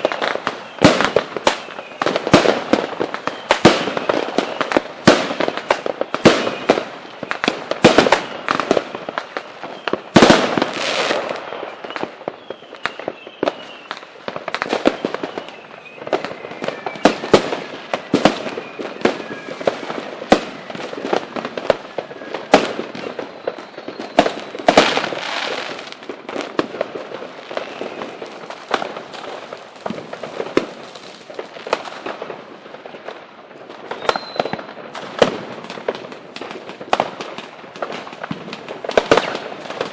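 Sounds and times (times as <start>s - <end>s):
fireworks bangs and cracks: 0.0s - 39.9s
fireworks falling whistles: 0.0s - 39.9s.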